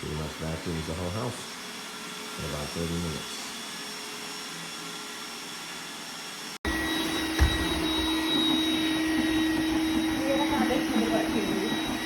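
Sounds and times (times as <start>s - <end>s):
robot vacuum whirring: 0.1s - 12.0s
short thump: 7.4s - 8.0s.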